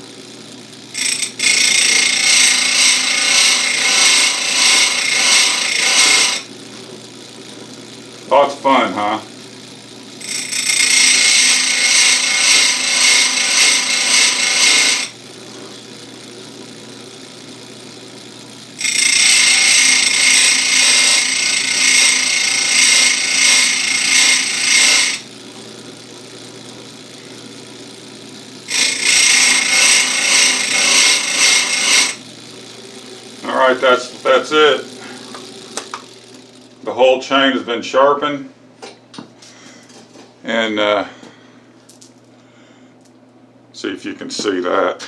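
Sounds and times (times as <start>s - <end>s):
grinder motor running: 0.0s - 38.2s
grinding wheel cutting steel: 0.7s - 6.5s, 8.3s - 37.6s.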